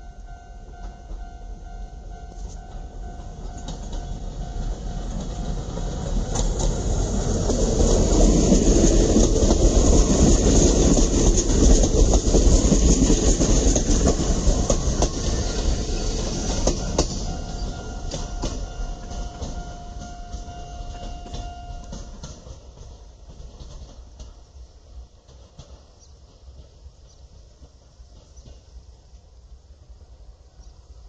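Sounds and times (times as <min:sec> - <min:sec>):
train wheels rumbling on rail: 0:00.0 - 0:31.0
clacks over rail joints: 0:02.4 - 0:29.0
steady high tone: 0:14.7 - 0:22.3.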